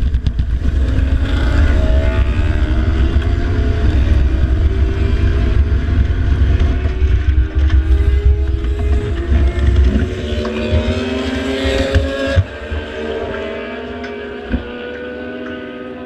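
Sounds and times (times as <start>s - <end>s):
wind buffeting microphone: 0.0s - 12.7s
motorcycle engine revving: 0.0s - 16.0s.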